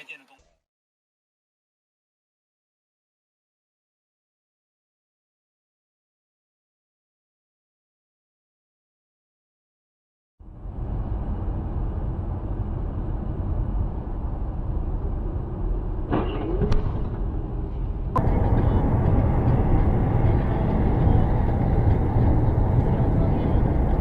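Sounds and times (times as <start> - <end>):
vehicle engine and road rumble: 10.4 - 24.0.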